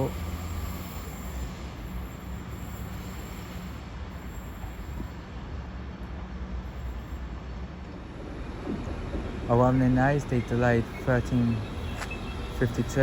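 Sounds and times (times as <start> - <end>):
train engine droning: 0.0 - 5.8
moving train noise: 0.0 - 13.0.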